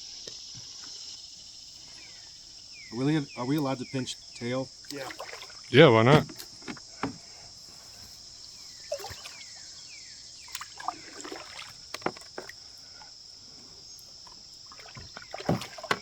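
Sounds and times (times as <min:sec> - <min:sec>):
insects buzzing: 0:00.0 - 0:16.0
small water splashes: 0:04.7 - 0:07.3, 0:08.7 - 0:13.2, 0:14.1 - 0:16.0.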